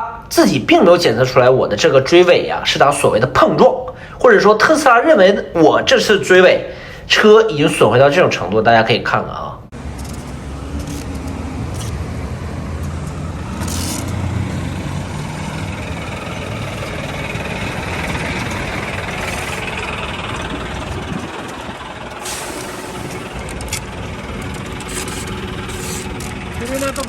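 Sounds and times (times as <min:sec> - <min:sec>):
vehicle engine running low: 0:09.7 - 0:27.0.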